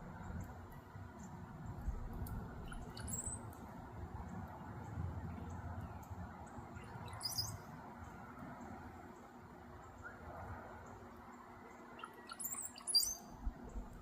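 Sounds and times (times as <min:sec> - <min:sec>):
steady low rumble: 0:00.0 - 0:10.9
songbird chirping: 0:00.0 - 0:14.0.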